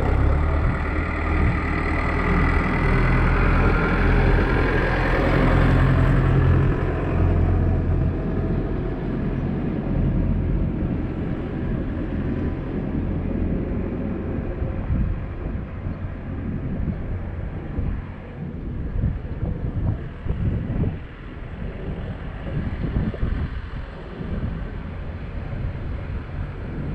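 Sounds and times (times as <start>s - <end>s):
rough rumbling noise: 0.0s - 26.9s
vehicle engine humming: 0.0s - 26.9s.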